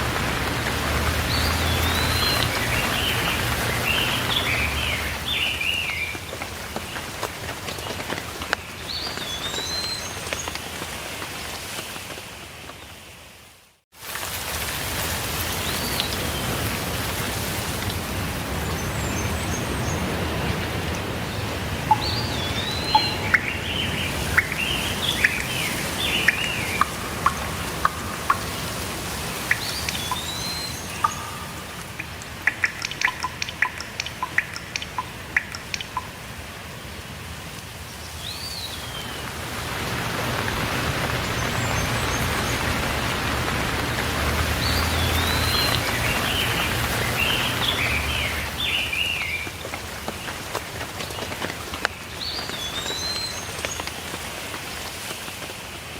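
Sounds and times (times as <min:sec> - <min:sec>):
songbirds singing and chirping: 0:00.0 - 0:10.6, 0:18.4 - 0:36.2, 0:38.0 - 0:54.0
steady rainfall: 0:00.0 - 0:55.9
quick sharp ticks: 0:26.2 - 0:36.2.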